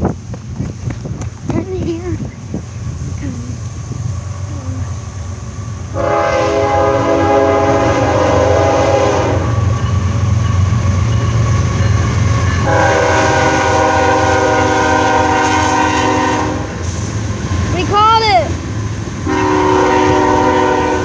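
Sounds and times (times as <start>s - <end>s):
train passing rumble: 0.0s - 21.0s
locomotive air horn blasts: 5.9s - 9.6s, 12.6s - 16.8s, 19.2s - 21.0s.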